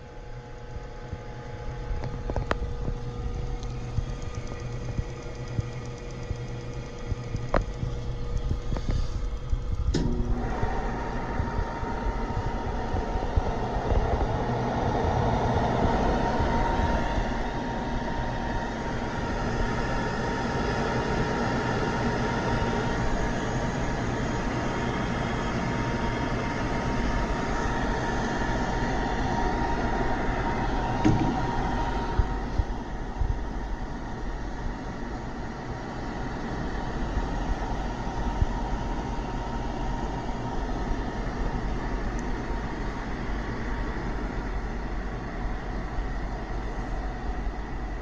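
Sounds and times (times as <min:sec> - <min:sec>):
grinder motor humming with whine: 0:00.0 - 0:34.4.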